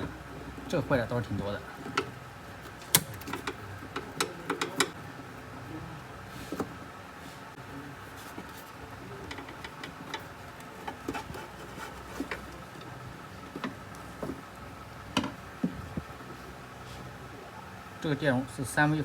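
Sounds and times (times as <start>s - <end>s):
clicks and taps on plastic and metal: 2.7s - 5.0s.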